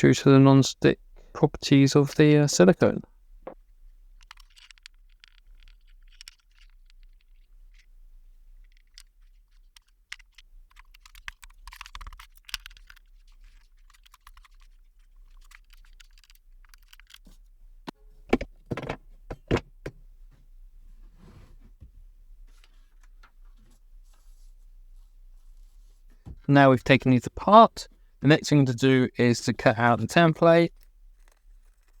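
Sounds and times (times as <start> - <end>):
wooden blocks clicking and tapping: 13.9 - 17.3
loud wooden knocks: 18.3 - 20.0.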